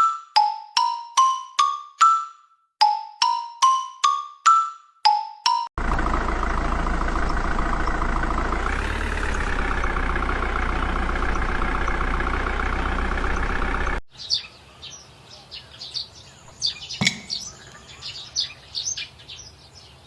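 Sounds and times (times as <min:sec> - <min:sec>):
tractor engine idling: 0:05.8 - 0:14.0.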